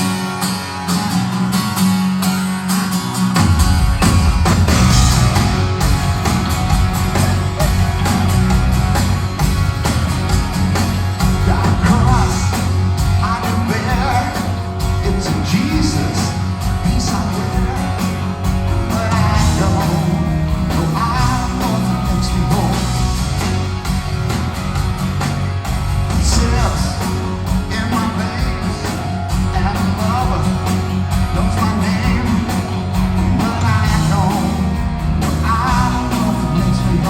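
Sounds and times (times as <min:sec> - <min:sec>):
live rock band playing: 0:00.0 - 0:37.0
lead singer singing: 0:11.3 - 0:18.2, 0:18.8 - 0:23.0, 0:26.2 - 0:37.0.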